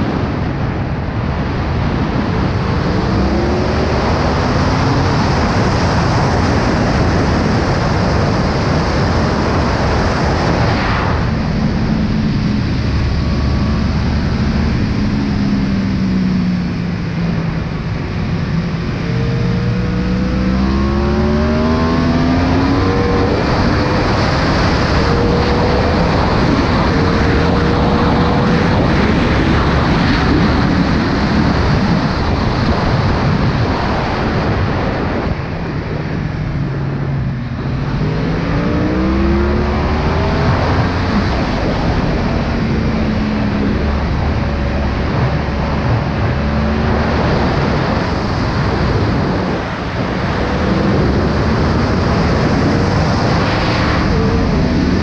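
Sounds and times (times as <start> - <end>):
wind buffeting microphone: 0.0 - 55.0
motorcycle engine revving: 9.8 - 33.7, 36.0 - 55.0.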